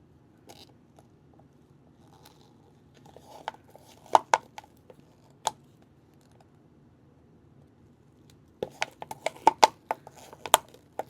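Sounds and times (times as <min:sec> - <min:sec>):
spatula scraping container: 0:08.6 - 0:11.0.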